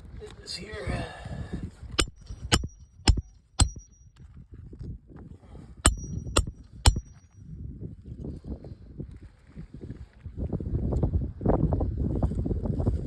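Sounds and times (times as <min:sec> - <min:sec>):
hammer driving nails: 0:02.0 - 0:04.0, 0:05.9 - 0:07.2.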